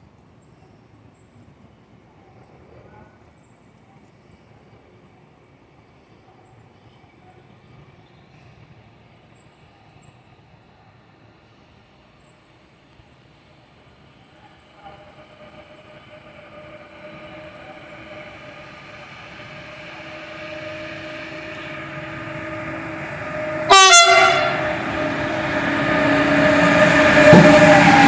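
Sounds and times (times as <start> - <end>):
train rumble: 6.2 - 28.0
electric locomotive humming: 6.7 - 28.0
train horn blast: 14.9 - 28.0.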